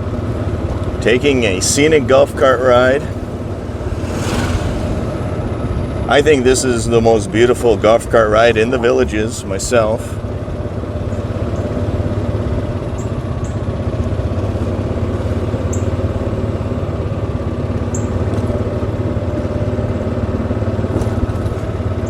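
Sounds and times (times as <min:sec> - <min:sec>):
golf cart motor droning: 0:00.0 - 0:03.5, 0:07.1 - 0:21.1.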